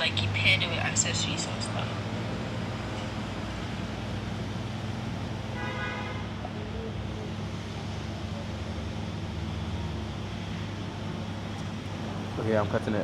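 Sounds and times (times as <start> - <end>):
car driving hum: 0.0 - 13.0
car horn toot: 5.5 - 6.3.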